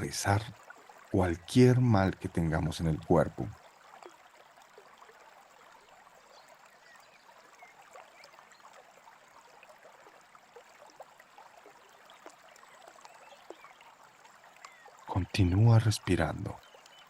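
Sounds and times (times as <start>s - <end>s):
brook babbling: 0.0s - 17.0s
soft bird chirps: 5.7s - 8.8s, 11.8s - 17.0s.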